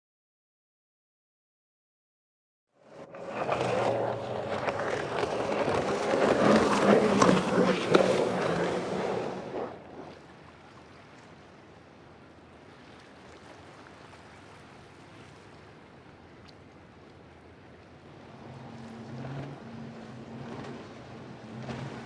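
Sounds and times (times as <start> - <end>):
another boat engine: 2.8 - 10.8, 17.5 - 22.0
motorboat engine running: 2.8 - 10.8, 17.2 - 22.0
faint hiss of wind and water: 5.4 - 22.0.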